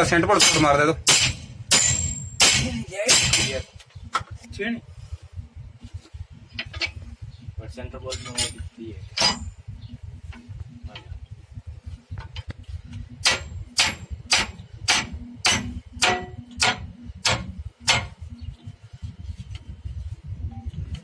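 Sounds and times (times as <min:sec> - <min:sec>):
hammer blows on steel: 0:00.4 - 0:03.8.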